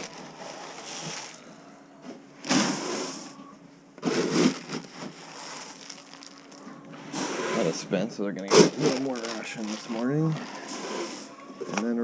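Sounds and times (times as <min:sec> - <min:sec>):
scraping rustling noise: 0:04.0 - 0:07.9.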